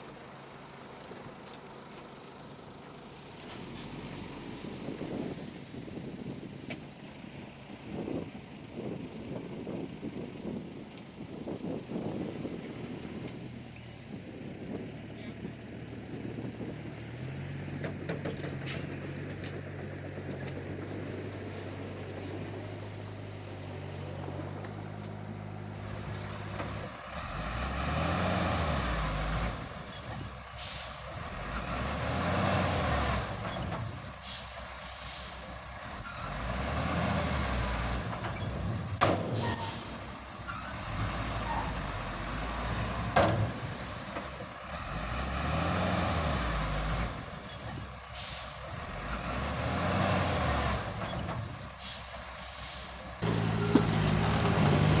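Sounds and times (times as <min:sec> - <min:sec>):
bulldozer diesel engine revving: 0:11.5 - 0:55.0.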